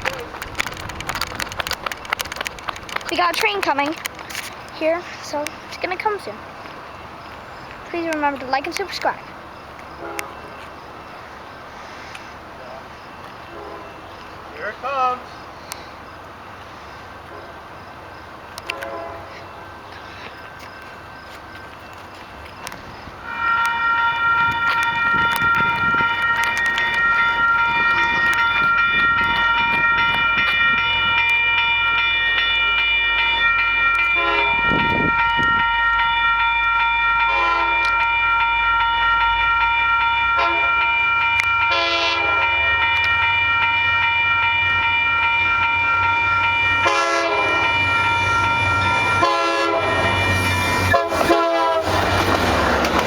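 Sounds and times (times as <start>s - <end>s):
train rumbling: 0.0s - 53.0s
train horn blasts: 10.0s - 10.5s, 13.5s - 14.0s, 18.6s - 19.8s, 23.2s - 32.0s, 33.0s - 52.4s.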